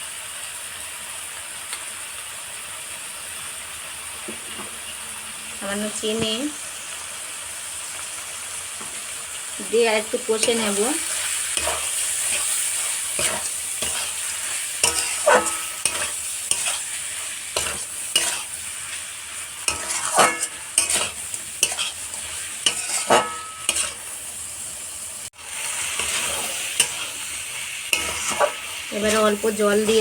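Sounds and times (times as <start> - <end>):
prawns sizzling in a pan: 0.0 - 30.0
utensil stirring and scraping: 10.4 - 19.0, 19.6 - 24.1, 25.6 - 30.0.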